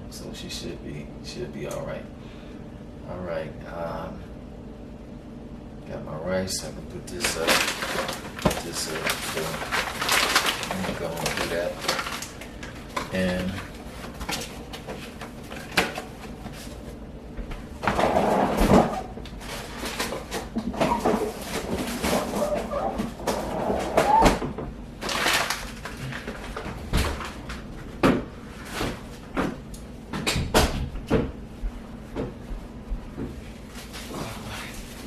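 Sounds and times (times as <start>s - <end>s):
kitchen items clattering: 7.2s - 16.8s, 17.8s - 29.0s.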